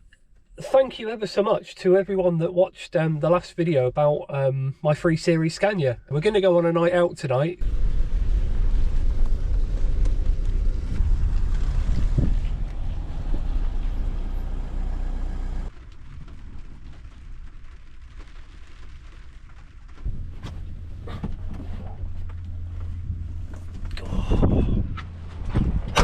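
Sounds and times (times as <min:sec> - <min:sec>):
lorry diesel engine rumbling: 0:07.6 - 0:15.8, 0:20.0 - 0:26.0.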